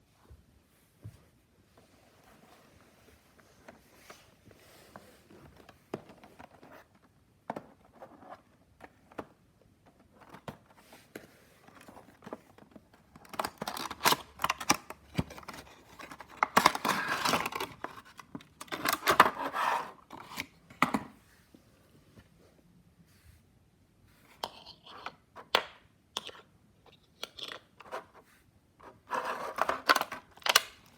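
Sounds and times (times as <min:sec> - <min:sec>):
packaging crinkling and tearing: 0:13.2 - 0:19.4.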